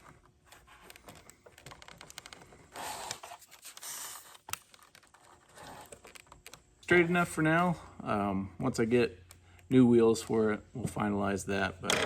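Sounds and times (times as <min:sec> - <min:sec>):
hands clicking and scraping plastic: 0:00.0 - 0:06.7.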